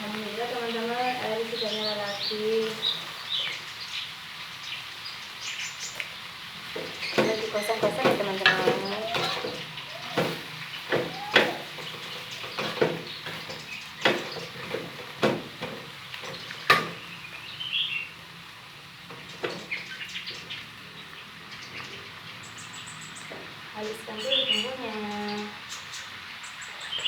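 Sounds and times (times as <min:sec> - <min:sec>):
bird chirping: 0:00.5 - 0:14.8, 0:16.0 - 0:18.2, 0:19.1 - 0:27.0
spatula scraping frying pan: 0:06.6 - 0:17.1.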